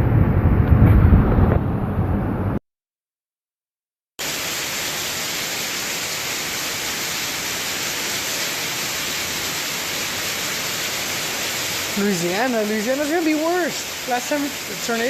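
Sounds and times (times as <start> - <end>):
heavy rain hissing: 4.2 - 15.0
rushing water: 4.2 - 15.0.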